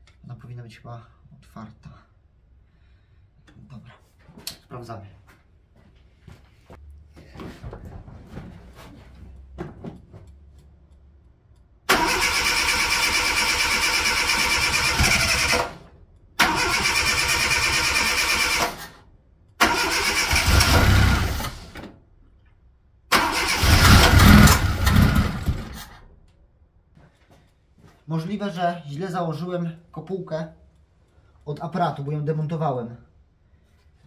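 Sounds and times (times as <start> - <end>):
engine cranking with starter motor: 11.9 - 19.0, 19.6 - 21.8, 23.1 - 26.0.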